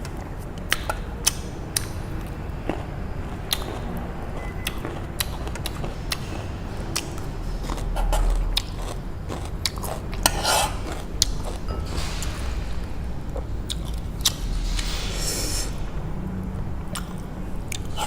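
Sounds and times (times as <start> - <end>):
wet chewing clicks: 0.7 - 11.6
low rumble: 1.1 - 18.0.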